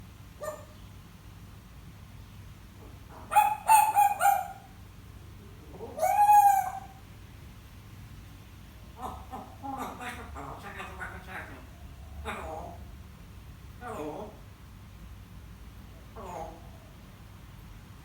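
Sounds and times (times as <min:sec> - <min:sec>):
parrot squawking: 0:00.4 - 0:00.8, 0:03.2 - 0:04.7, 0:05.9 - 0:07.0, 0:09.0 - 0:12.9
parrot rising call: 0:03.3 - 0:04.7, 0:06.0 - 0:07.0.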